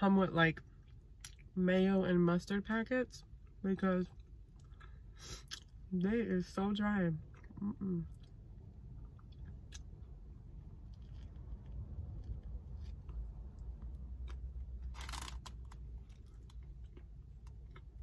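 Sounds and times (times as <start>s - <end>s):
steady low rumble: 0.0s - 18.0s
chewing bread with wet clicks: 0.7s - 1.5s, 7.2s - 10.2s, 16.1s - 18.0s.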